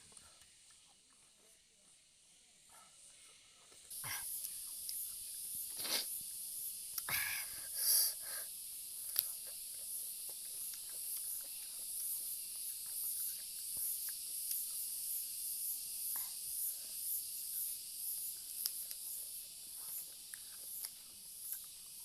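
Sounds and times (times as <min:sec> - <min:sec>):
chewing and crunching vegetables: 0:00.0 - 0:02.1, 0:03.6 - 0:07.1, 0:08.6 - 0:22.0
steady hiss: 0:00.0 - 0:22.0
small wet mouth clicks: 0:06.9 - 0:07.1, 0:09.0 - 0:14.9.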